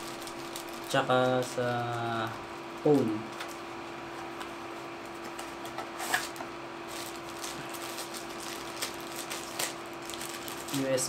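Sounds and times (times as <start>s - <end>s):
packaging clicks and rustles: 0.0s - 3.7s, 5.1s - 11.0s.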